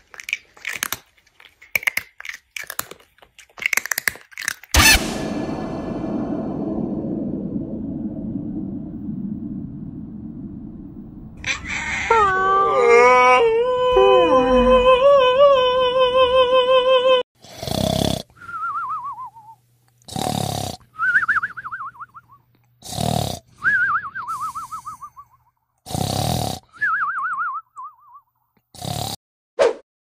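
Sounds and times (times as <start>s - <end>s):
cat-like yowl: 11.4s - 15.5s
cartoon snoring and whistle: 17.4s - 28.2s, 28.8s - 29.2s.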